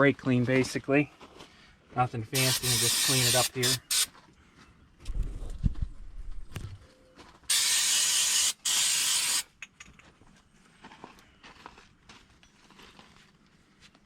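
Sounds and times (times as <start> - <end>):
aerosol can spraying: 2.4 - 4.1, 7.5 - 9.5.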